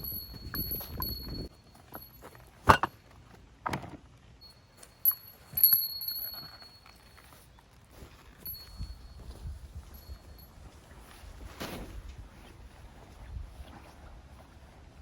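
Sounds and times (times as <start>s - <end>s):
small bell ringing: 0.0s - 2.6s, 4.4s - 7.5s, 8.4s - 10.8s.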